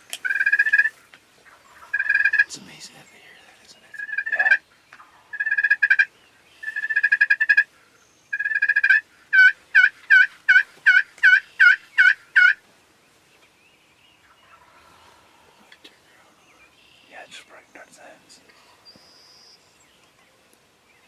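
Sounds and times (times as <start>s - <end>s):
turkey rattling calls: 0.0s - 12.6s, 14.2s - 18.2s
turkey yelps: 0.2s - 2.5s, 3.9s - 4.6s, 5.3s - 7.7s, 8.3s - 12.6s.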